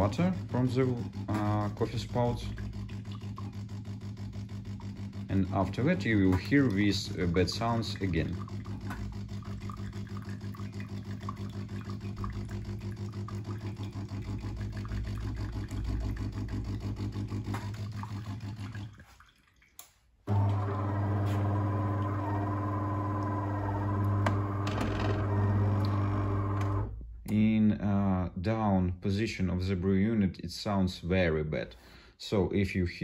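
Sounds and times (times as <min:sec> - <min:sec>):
water pump pulsing: 0:00.0 - 0:19.4, 0:20.3 - 0:27.0
gear motor humming: 0:20.3 - 0:26.9.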